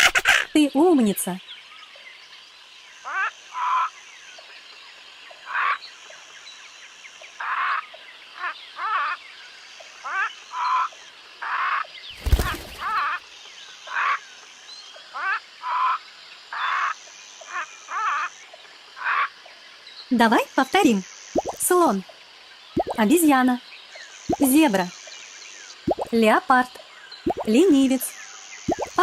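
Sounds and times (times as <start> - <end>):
parrot squawking: 0.0 - 0.5.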